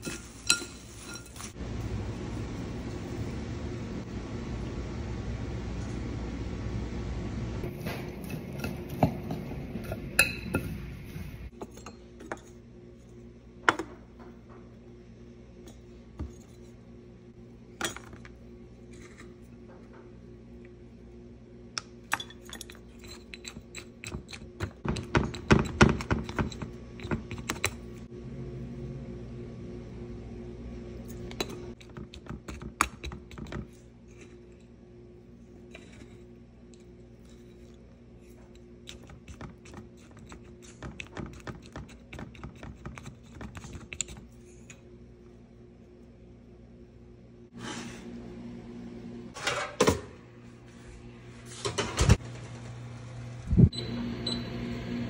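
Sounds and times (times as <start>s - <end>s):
spoon scraping glass bowl: 0.0s - 1.6s, 22.3s - 24.4s
steady low hum: 0.0s - 55.0s.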